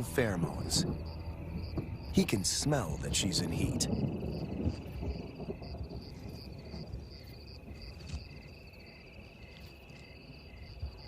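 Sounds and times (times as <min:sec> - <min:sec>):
low outdoor rumble: 0:00.0 - 0:08.0
insect chirp: 0:00.0 - 0:11.0
insects trilling: 0:00.0 - 0:11.0.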